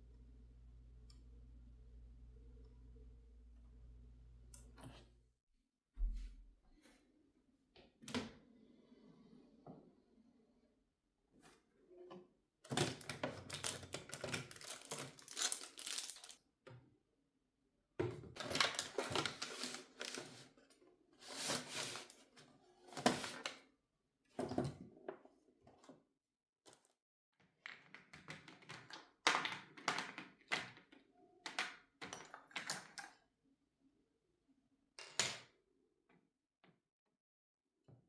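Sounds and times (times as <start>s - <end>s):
rustling and scraping: 21.2s - 23.4s.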